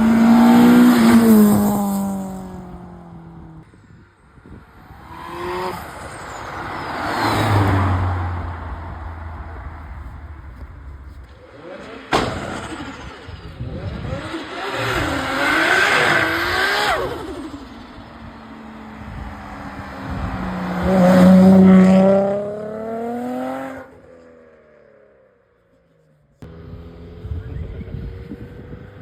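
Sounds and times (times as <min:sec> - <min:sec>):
car engines revving: 0:00.0 - 0:03.7, 0:04.4 - 0:25.2, 0:26.4 - 0:29.0
sharp crack: 0:08.9 - 0:13.6.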